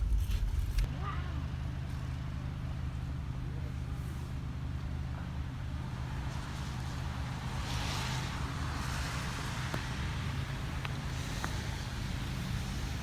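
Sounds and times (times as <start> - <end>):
car engine running: 0.0 - 0.9.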